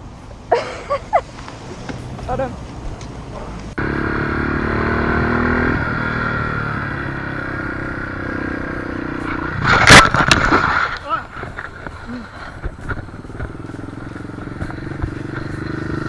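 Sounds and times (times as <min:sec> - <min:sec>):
motorcycle engine running: 0:03.7 - 0:10.0, 0:11.5 - 0:16.0
wind noise: 0:09.2 - 0:16.0
loud crash with scraping clatter: 0:09.5 - 0:11.7.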